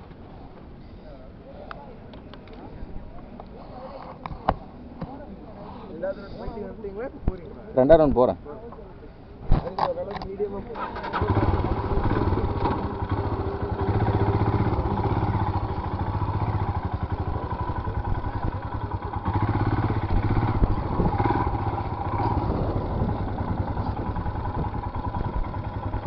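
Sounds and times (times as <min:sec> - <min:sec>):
motorcycle engine revving: 0:10.8 - 0:26.0.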